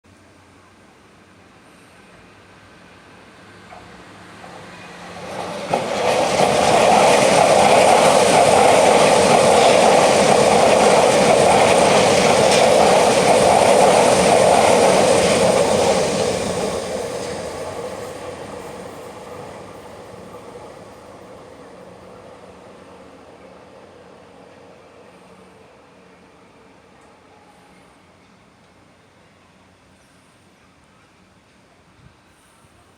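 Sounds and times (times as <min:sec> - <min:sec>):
train wheels on rails: 0:01.7 - 0:26.2.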